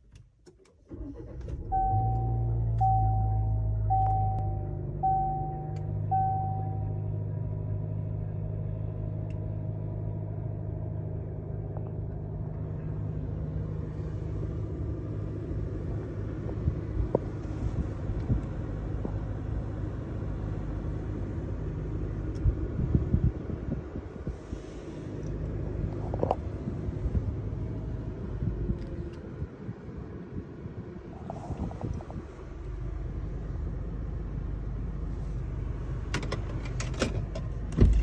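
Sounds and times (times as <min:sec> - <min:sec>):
car engine idling: 0:00.9 - 0:29.1
dashboard chime: 0:01.8 - 0:07.0.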